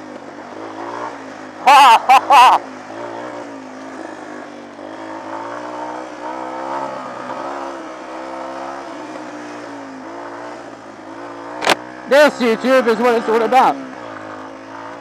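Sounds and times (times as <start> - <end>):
off-road motorcycle engine: 0.0 - 15.0.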